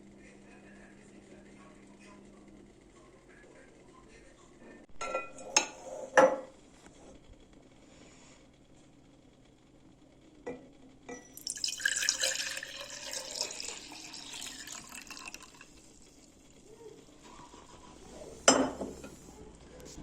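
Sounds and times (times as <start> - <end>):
liquid pouring into a container: 11.4 - 16.7.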